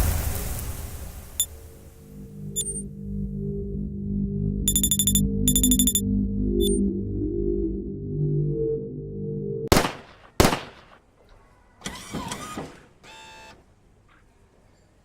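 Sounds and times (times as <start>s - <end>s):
noisy sweep with bending tone: 1.6s - 9.7s
low electronic music: 1.9s - 9.7s
buzzy beep: 2.5s - 2.9s, 4.7s - 6.8s.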